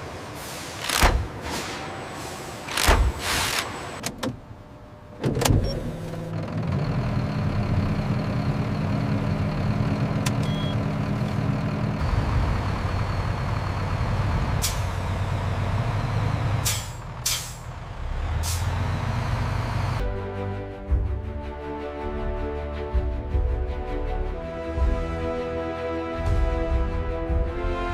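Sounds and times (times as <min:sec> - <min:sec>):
heavy machine humming: 0:05.8 - 0:20.0.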